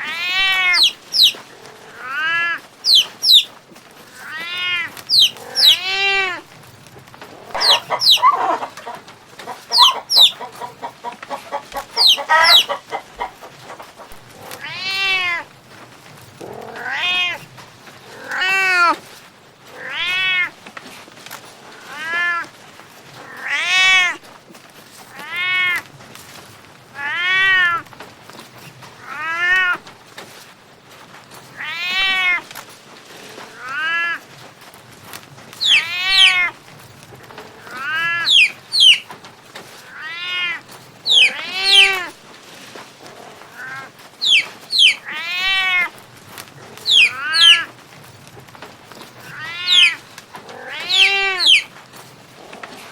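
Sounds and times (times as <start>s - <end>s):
high squeaky cat calls: 0.0s - 1.4s, 2.0s - 3.5s, 4.1s - 6.4s, 7.4s - 9.0s, 9.7s - 10.5s, 11.5s - 12.8s, 14.6s - 15.5s, 16.6s - 17.5s, 18.1s - 19.0s, 19.8s - 20.6s, 31.6s - 32.4s, 35.6s - 36.6s, 37.6s - 39.1s, 39.9s - 42.1s, 43.5s - 45.9s, 46.8s - 47.7s, 49.2s - 51.7s
cat meowing: 0.0s - 3.5s, 4.1s - 6.5s, 7.4s - 8.8s, 14.4s - 15.5s, 16.4s - 17.5s, 18.1s - 19.0s, 19.7s - 20.6s, 21.8s - 22.5s, 23.2s - 24.2s, 25.1s - 25.8s, 26.9s - 27.9s, 29.0s - 29.9s, 31.6s - 32.5s, 33.5s - 34.2s, 35.6s - 36.6s, 37.6s - 39.0s, 39.8s - 42.2s, 43.5s - 46.0s, 46.8s - 47.7s, 49.2s - 51.7s.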